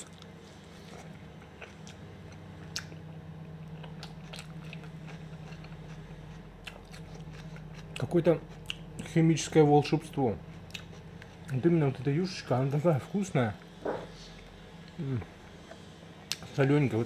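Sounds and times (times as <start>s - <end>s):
person chewing food: 0.0s - 9.1s, 10.4s - 11.6s
low hum: 0.0s - 17.0s.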